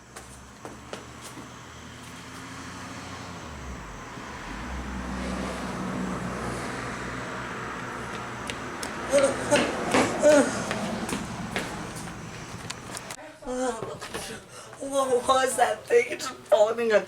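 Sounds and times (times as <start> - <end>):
motor vehicle rumble: 0.0 - 13.2.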